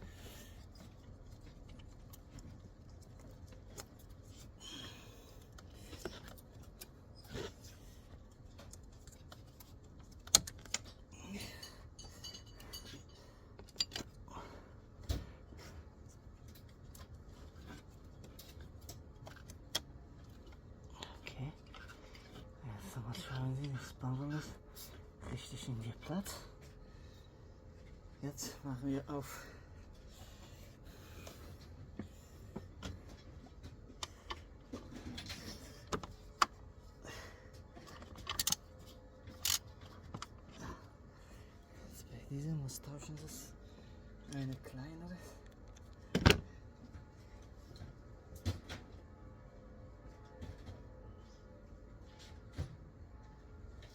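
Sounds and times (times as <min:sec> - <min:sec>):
tools and metal parts clicking: 0:05.4 - 0:14.3, 0:37.8 - 0:40.9
metal tools clinking on fittings: 0:11.2 - 0:14.1.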